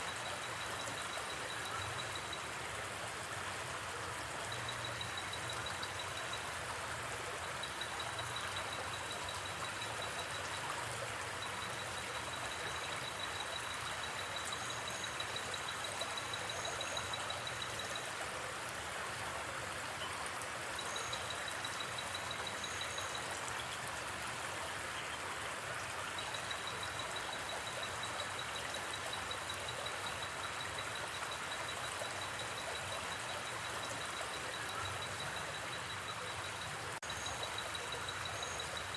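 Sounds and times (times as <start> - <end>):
faint paired chirps: 26.2 - 38.9.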